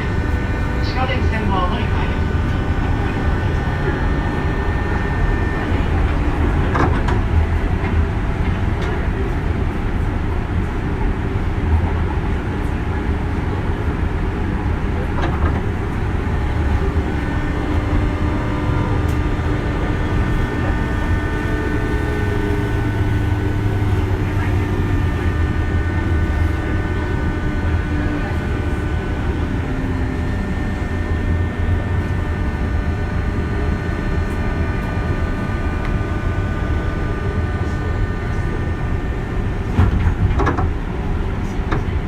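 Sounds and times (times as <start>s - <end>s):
train motor whine: 0.0s - 42.0s
train wheels rumbling on rail: 0.0s - 42.0s.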